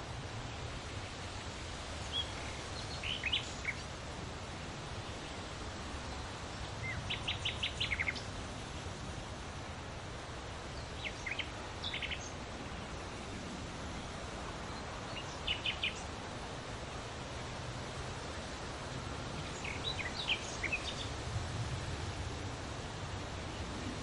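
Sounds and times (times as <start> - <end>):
outdoor background hiss: 0.0 - 24.0
small birds chirping: 2.0 - 3.9, 6.2 - 8.4, 10.7 - 13.4, 14.6 - 16.2, 19.4 - 21.3.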